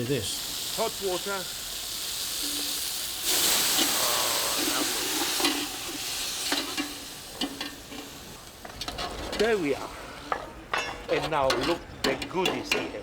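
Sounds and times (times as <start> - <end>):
food frying in a pan: 0.0 - 8.8
loud sizzling of water in hot pan: 0.0 - 9.0.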